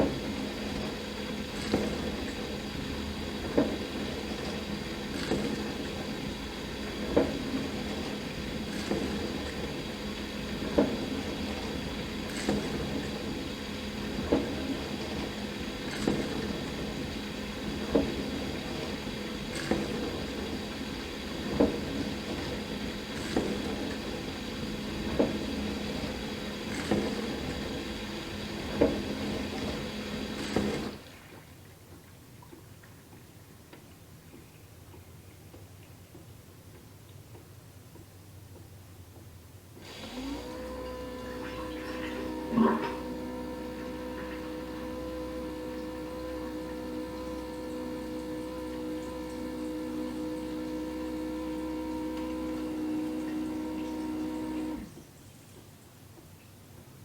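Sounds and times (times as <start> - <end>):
dishwasher motor hum: 0.0 - 33.6, 39.2 - 55.8
faint ticks and drips: 31.3 - 39.4.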